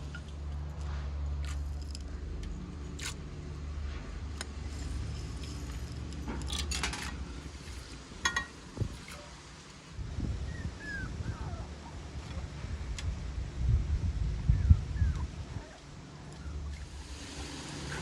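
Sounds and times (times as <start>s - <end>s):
dishes and utensils clinking: 8.2s - 8.6s.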